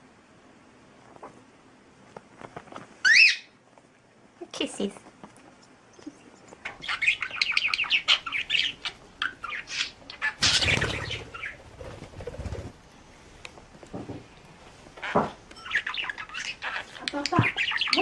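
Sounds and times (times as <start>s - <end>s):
bird flapping wings: 10.4s - 12.8s
bird clicks and chirps: 15.5s - 18.0s.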